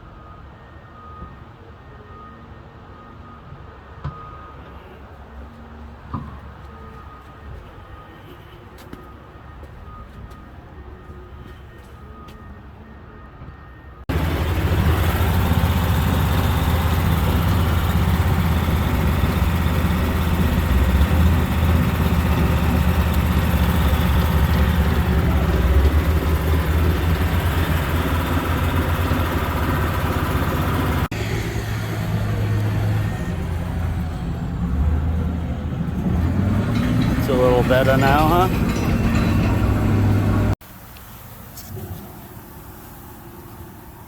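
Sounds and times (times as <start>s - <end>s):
diesel truck engine running: 14.1s - 44.0s.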